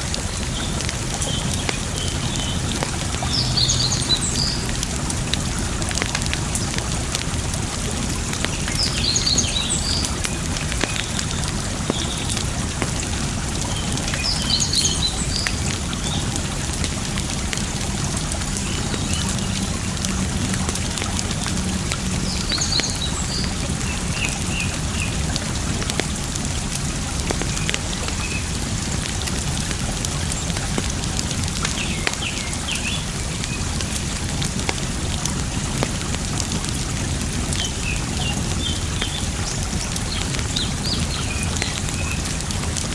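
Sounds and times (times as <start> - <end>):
campfire crackling and popping: 0.0 - 42.9
running water: 0.0 - 42.9
birds chirping: 0.1 - 5.6, 8.4 - 12.8, 13.6 - 17.2, 18.1 - 25.3.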